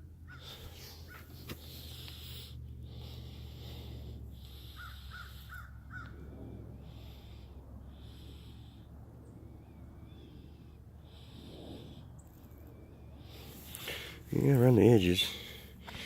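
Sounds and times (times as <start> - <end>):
steady low rumble: 0.0 - 16.0
crows cawing: 0.2 - 1.2, 4.6 - 6.2.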